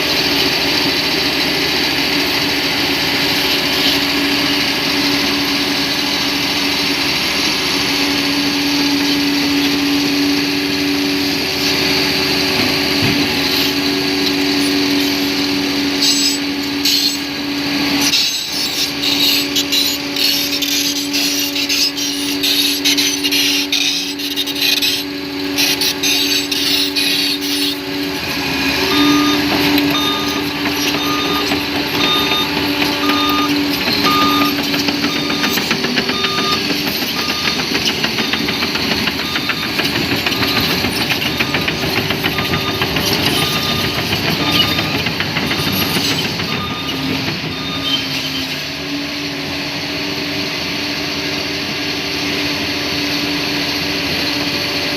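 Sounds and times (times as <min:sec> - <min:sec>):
bulldozer engine running: 0:00.0 - 0:54.9
reversing alarm beeps: 0:28.8 - 0:48.5.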